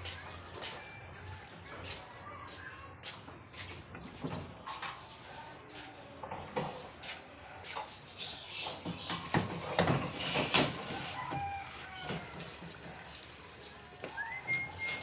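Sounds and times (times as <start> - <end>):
plywood and tools clattering: 8.9 - 11.2.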